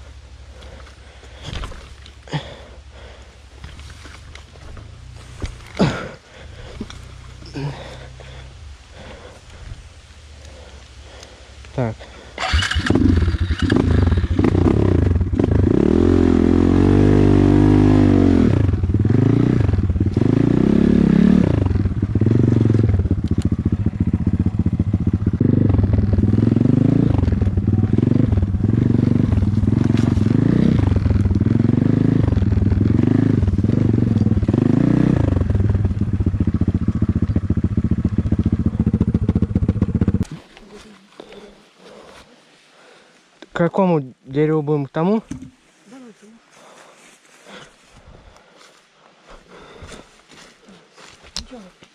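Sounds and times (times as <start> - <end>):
vehicle engine revving: 12.4 - 40.4.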